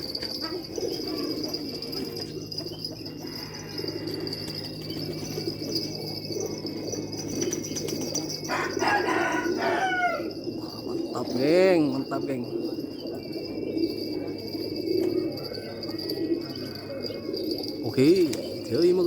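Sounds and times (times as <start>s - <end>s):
wings flapping: 0.0s - 16.4s, 17.3s - 19.0s
high insect drone: 0.0s - 19.0s
pigeons cooing: 0.0s - 19.0s
rooster crowing: 2.4s - 5.8s, 8.2s - 10.5s, 15.0s - 18.1s.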